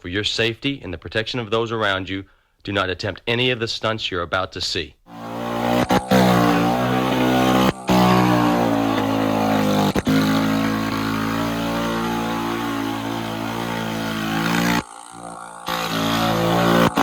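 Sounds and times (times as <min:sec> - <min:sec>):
small bike engine revving: 0:05.1 - 0:17.0.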